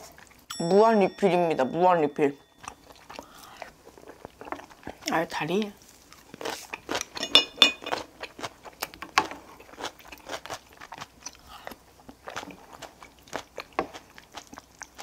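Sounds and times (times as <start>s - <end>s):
crisp crunching chewing: 2.6s - 7.2s, 7.9s - 15.0s.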